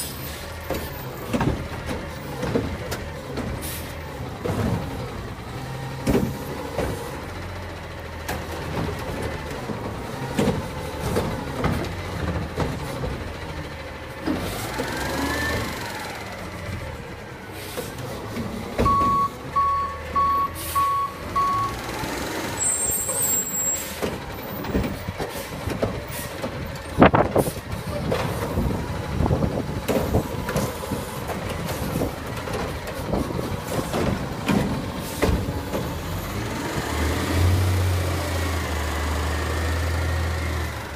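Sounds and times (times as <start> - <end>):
garbage truck engine running: 0.0 - 40.9
clanks and knocks: 0.6 - 3.6, 24.0 - 36.0
reversing beeper: 18.8 - 21.8.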